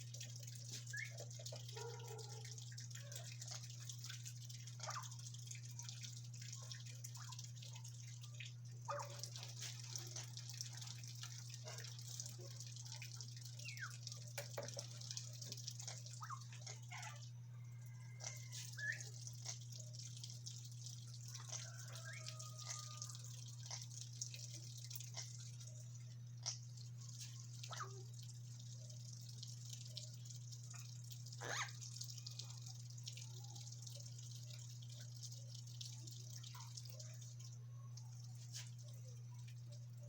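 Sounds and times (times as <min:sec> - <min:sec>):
parrots clicking and chirping: 0:21.3 - 0:24.1, 0:25.0 - 0:25.5, 0:26.4 - 0:28.0, 0:30.7 - 0:31.8.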